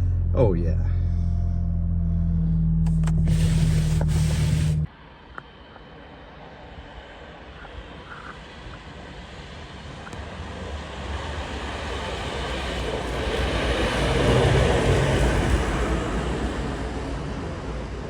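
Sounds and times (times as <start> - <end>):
car engine and road noise: 0.0 - 11.5.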